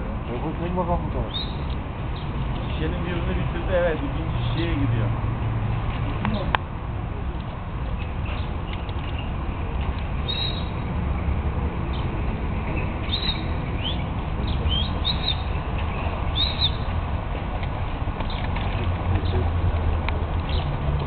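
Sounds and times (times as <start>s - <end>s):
small birds chirping: 1.2s - 2.8s, 8.0s - 9.5s, 10.2s - 10.9s, 12.8s - 17.0s, 20.4s - 20.7s.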